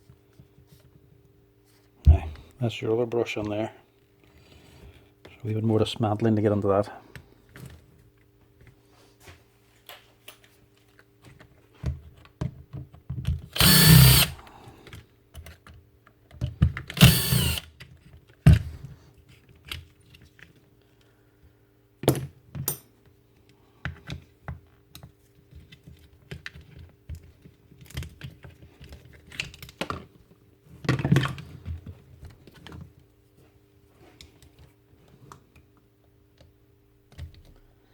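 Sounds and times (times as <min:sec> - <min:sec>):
clatter of screws and plastic parts: 0:13.2 - 0:17.9
cordless screwdriver running: 0:13.6 - 0:14.4, 0:17.0 - 0:17.7.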